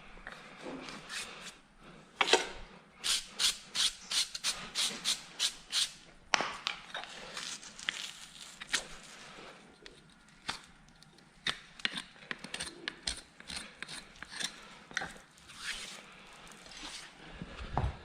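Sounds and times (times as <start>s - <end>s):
hand tool scraping hoof: 11.5s - 16.1s.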